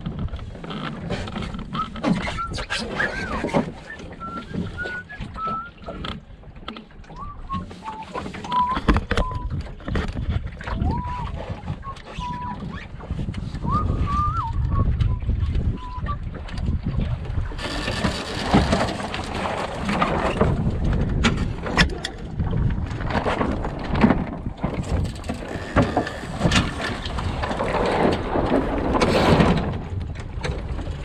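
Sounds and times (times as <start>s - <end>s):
wind buffeting microphone: 0.0s - 6.4s, 7.0s - 31.0s
water noise: 0.0s - 31.0s
short squeaky bending tones: 1.7s - 6.0s, 7.1s - 9.6s, 10.7s - 12.9s, 24.7s - 27.1s
knocks from boat: 13.2s - 31.0s.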